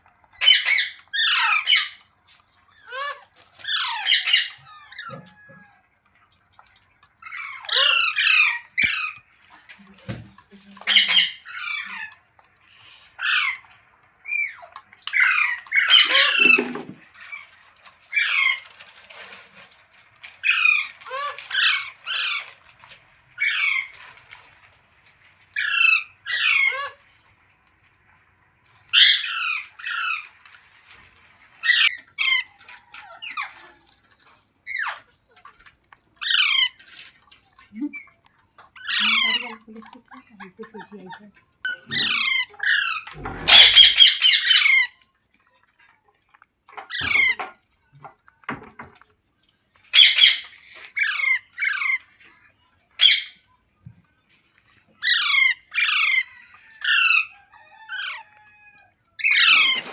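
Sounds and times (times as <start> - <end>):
parrot squawking: 0.4 - 2.0, 2.8 - 5.6, 7.2 - 9.2, 10.8 - 12.2, 14.3 - 17.0, 25.6 - 27.0, 28.9 - 30.2, 31.6 - 33.6, 36.2 - 36.8, 38.7 - 39.6, 41.7 - 45.0, 49.9 - 52.0, 53.0 - 53.4, 55.0 - 59.9.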